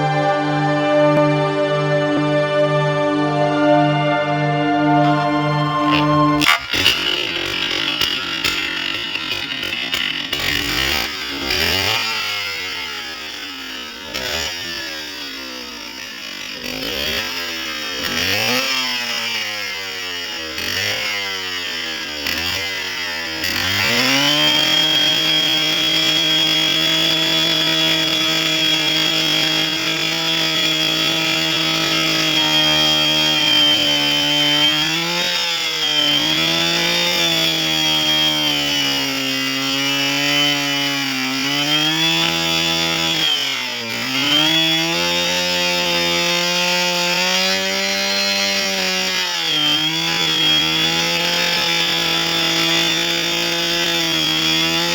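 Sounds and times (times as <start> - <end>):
chainsaw cutting wood: 3.9 - 54.9.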